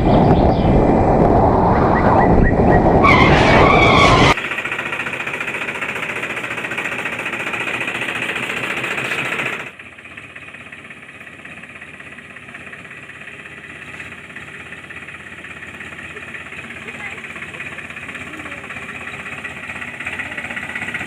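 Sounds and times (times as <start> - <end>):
small motor rattling: 4.4 - 21.0.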